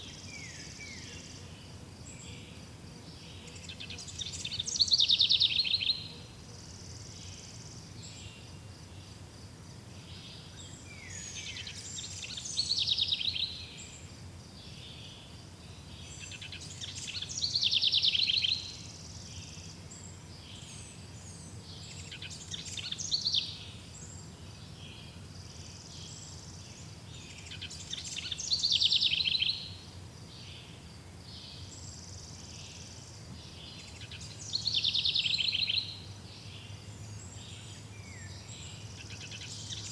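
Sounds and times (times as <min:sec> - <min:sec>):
songbird trilling: 0:27.4 - 0:29.7, 0:33.8 - 0:36.0.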